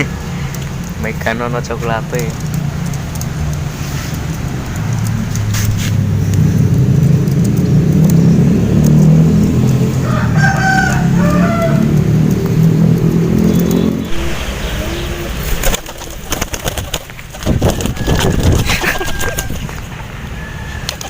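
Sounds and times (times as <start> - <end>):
loud low rumble: 5.2 - 16.2
rooster crowing: 9.8 - 12.4, 17.6 - 21.0.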